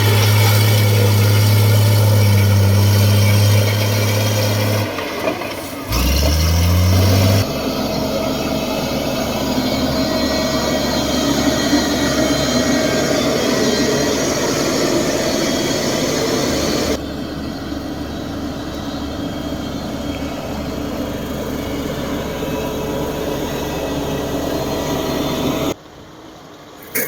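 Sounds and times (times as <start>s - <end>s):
heavy diesel engine running: 0.0s - 25.8s.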